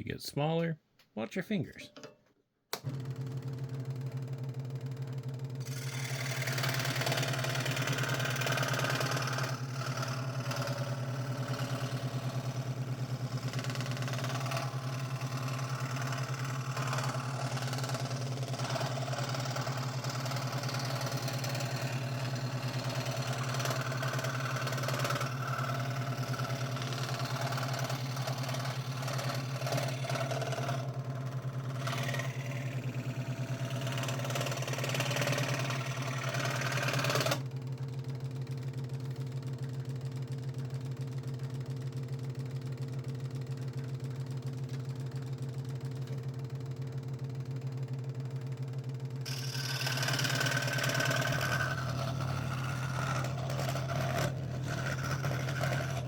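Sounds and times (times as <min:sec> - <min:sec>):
scroll saw motor hum: 0:05.6 - 0:37.5, 0:49.2 - 0:56.0
saw blade rasping through wood: 0:05.7 - 0:37.4, 0:49.3 - 0:56.0.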